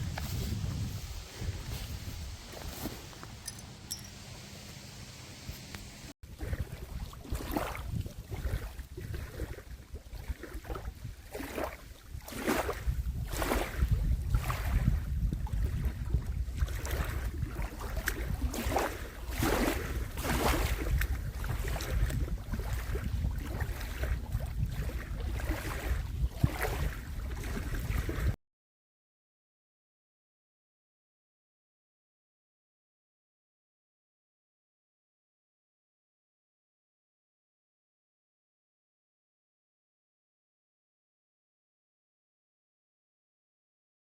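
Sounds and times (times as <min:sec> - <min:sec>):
wind buffeting microphone: 0:00.0 - 0:28.4.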